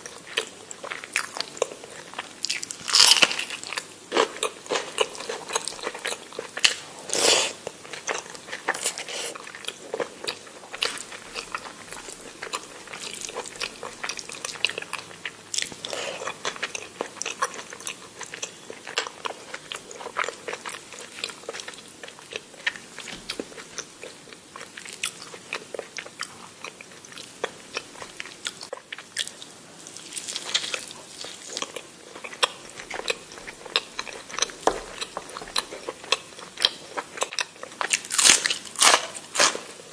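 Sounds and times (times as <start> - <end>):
person chewing crunchy food: 0.0 - 39.8.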